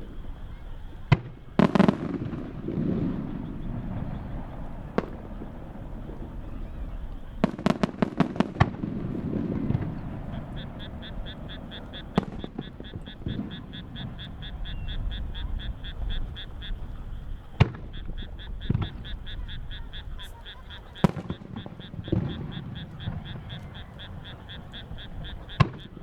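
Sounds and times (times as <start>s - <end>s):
firework shells bursting: 1.1s - 15.3s, 16.8s - 20.4s, 21.0s - 26.0s
high rapid chirping: 10.4s - 26.0s.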